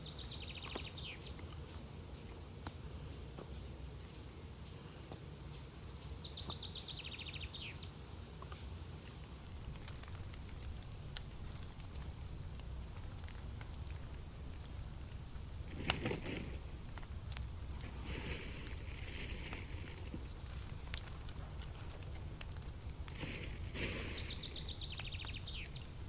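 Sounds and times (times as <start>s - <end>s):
bird trill: 0.0s - 1.4s, 5.4s - 7.9s, 23.4s - 26.0s
campfire crackling and popping: 0.0s - 26.0s.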